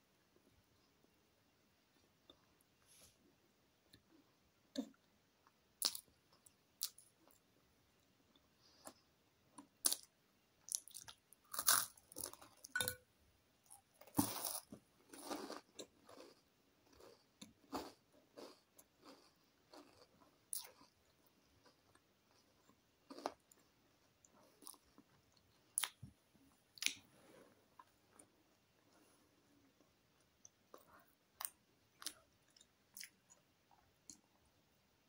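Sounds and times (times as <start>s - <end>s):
chewing and crunching food: 8.3s - 12.8s, 13.6s - 34.4s.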